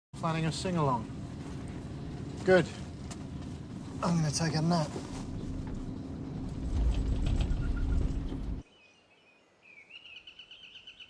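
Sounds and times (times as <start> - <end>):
loud low rumble with hum: 0.2 - 8.6
bird chirping: 5.2 - 11.0.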